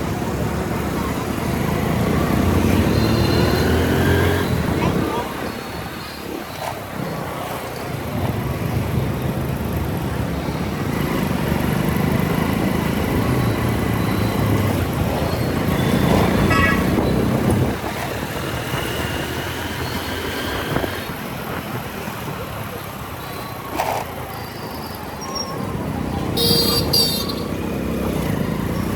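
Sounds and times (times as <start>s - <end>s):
motorcycle engine rumble: 0.0s - 28.9s
vehicle horn: 26.4s - 27.6s.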